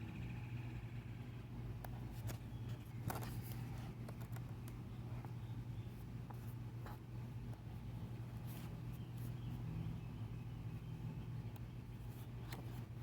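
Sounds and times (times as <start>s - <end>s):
low steady hum: 0.0s - 13.0s
book pages turning: 2.1s - 4.6s, 12.0s - 13.0s.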